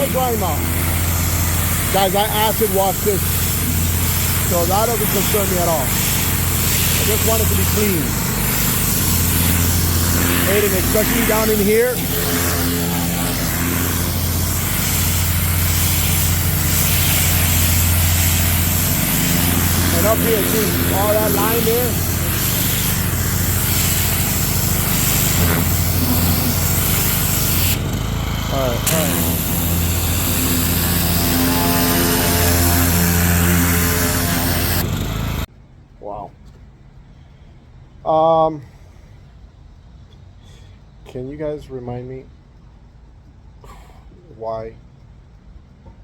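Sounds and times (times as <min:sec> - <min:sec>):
water jet hissing: 0:00.0 - 0:35.0
pressure washer motor hum: 0:00.0 - 0:35.5.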